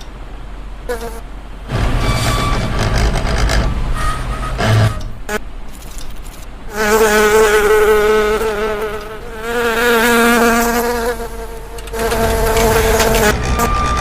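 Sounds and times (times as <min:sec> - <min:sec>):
insect-like buzzing: 0:05.3 - 0:13.4.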